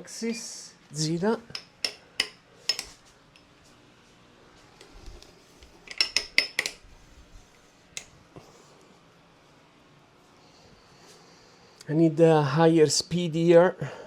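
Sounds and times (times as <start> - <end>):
metal parts clinking: 1.6 - 3.0, 5.8 - 6.8.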